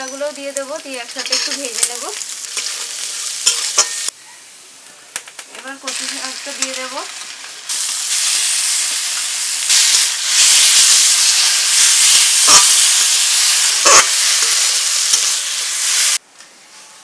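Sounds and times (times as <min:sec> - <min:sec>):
leaves sizzling in hot oil: 0:00.0 - 0:04.2, 0:05.2 - 0:16.2
metal spatula scraping pan: 0:01.1 - 0:01.9.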